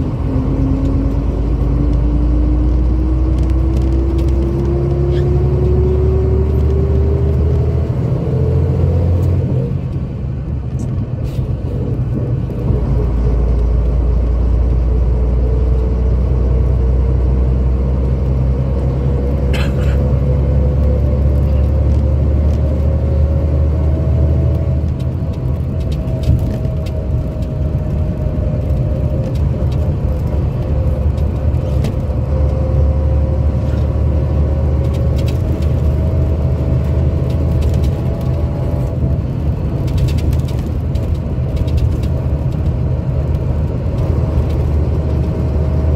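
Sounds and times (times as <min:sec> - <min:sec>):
diesel engine rumble with whine: 0:00.0 - 0:45.9.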